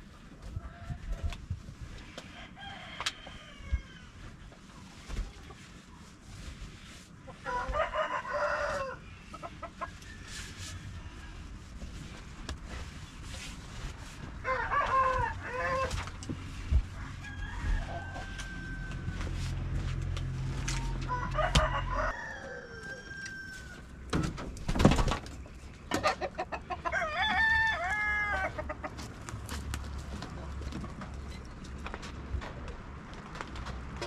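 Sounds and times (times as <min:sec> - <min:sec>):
hens clucking: 0:07.2 - 0:10.0, 0:25.8 - 0:27.4, 0:28.2 - 0:29.2
rooster crowing: 0:07.5 - 0:09.0, 0:14.4 - 0:16.0, 0:17.0 - 0:19.4, 0:20.7 - 0:23.9, 0:26.9 - 0:28.6.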